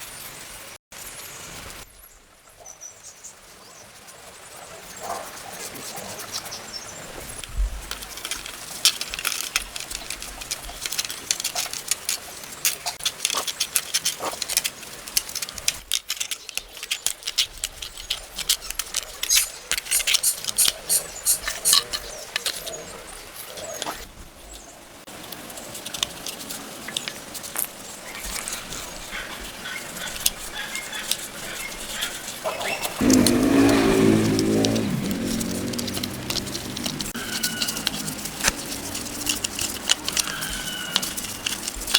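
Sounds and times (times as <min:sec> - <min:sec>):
hard objects clicking and tapping: 0:33.0 - 0:41.9.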